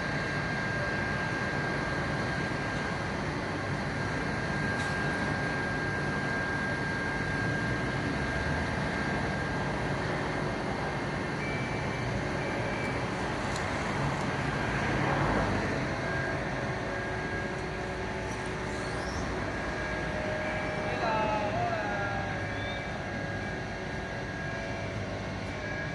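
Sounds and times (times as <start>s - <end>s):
street and vehicle engine noise: 0.0s - 25.9s
thin constant tone: 15.5s - 25.9s.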